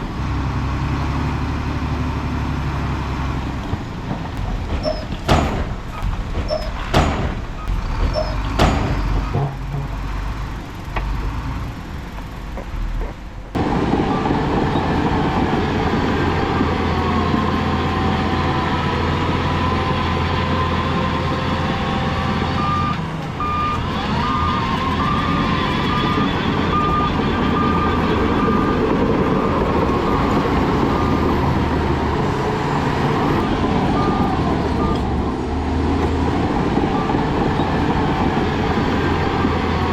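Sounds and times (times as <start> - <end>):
diesel engine rumble: 0.0 - 39.9
metallic clanks: 3.7 - 13.6
reversing alarm beeping: 4.4 - 9.5, 21.6 - 31.8, 33.2 - 35.4.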